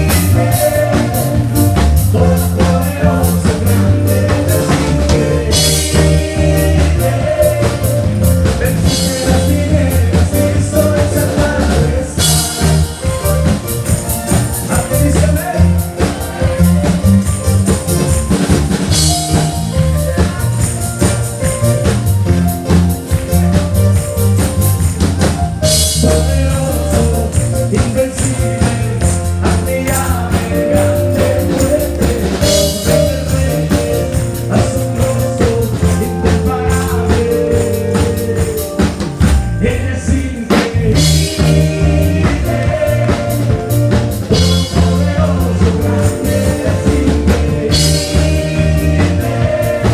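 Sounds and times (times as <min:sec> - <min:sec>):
person singing: 0:00.0 - 0:13.6, 0:25.8 - 0:49.9
tambourine: 0:00.0 - 0:39.6, 0:40.3 - 0:49.9
live band playing upbeat song: 0:00.0 - 0:49.9.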